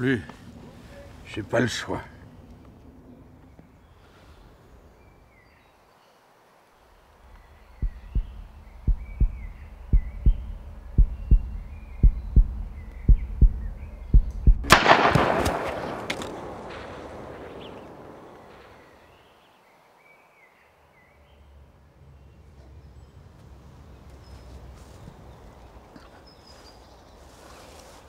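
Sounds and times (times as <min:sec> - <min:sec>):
birds chirping faintly: 0:00.0 - 0:14.6, 0:15.8 - 0:28.0
heartbeat thumps: 0:07.7 - 0:14.8
echoing rifle shot: 0:14.6 - 0:19.1.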